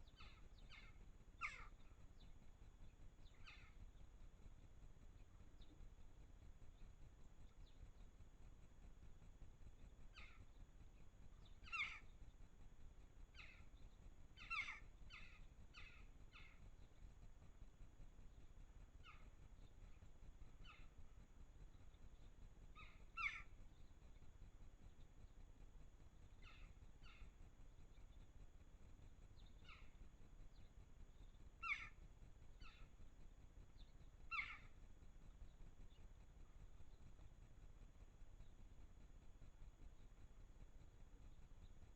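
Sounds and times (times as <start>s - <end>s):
small bird calling: 0.0s - 8.2s, 9.8s - 17.6s, 18.3s - 25.4s, 26.1s - 41.9s
bird short sharp calls: 0.2s - 1.7s, 11.6s - 12.1s, 14.4s - 16.6s, 22.8s - 23.5s, 31.6s - 32.0s, 34.3s - 34.7s.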